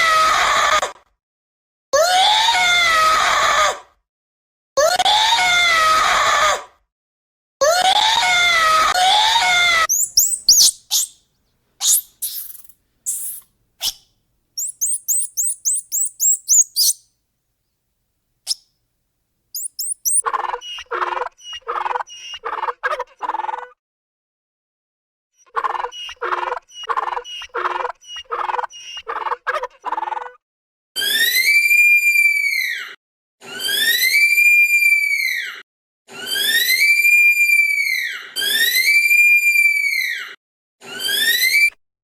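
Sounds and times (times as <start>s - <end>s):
fast short repeated calls: 9.9s - 11.2s, 11.8s - 14.0s, 14.6s - 17.0s, 19.6s - 20.2s
high bird chirps and twittering: 9.9s - 11.2s, 11.8s - 14.0s, 14.6s - 17.0s, 19.6s - 20.2s
long loud animal calls: 9.9s - 11.2s, 11.8s - 14.0s, 14.6s - 17.0s, 19.6s - 20.2s.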